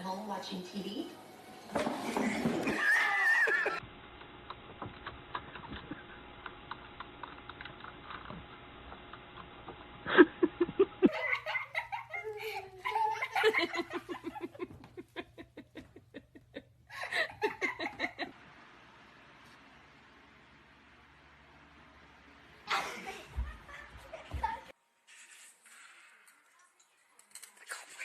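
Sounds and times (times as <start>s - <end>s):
people laughing: 2.0s - 3.8s, 10.1s - 18.3s, 22.7s - 24.7s.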